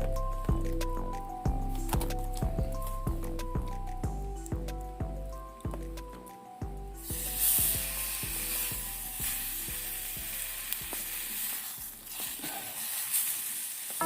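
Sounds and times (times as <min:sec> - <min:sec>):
soft plucked background music: 0:00.0 - 0:12.2
food sizzling in a pan: 0:07.0 - 0:14.0.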